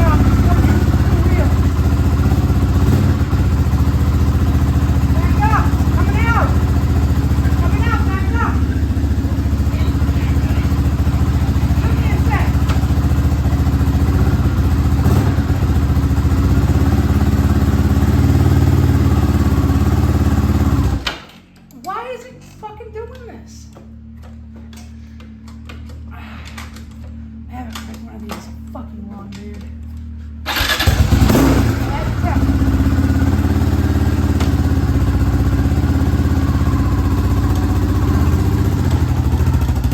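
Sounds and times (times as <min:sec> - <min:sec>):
atv engine running steadily: 0:00.0 - 0:21.1, 0:29.8 - 0:39.9.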